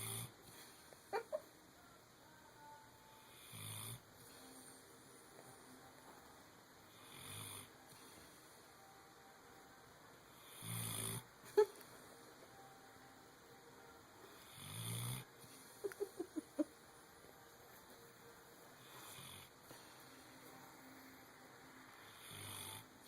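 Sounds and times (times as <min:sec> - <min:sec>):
dog snoring: 0:00.0 - 0:00.4, 0:03.2 - 0:04.0, 0:06.9 - 0:08.0, 0:10.4 - 0:11.3, 0:14.3 - 0:15.3, 0:18.8 - 0:19.5, 0:21.9 - 0:23.0.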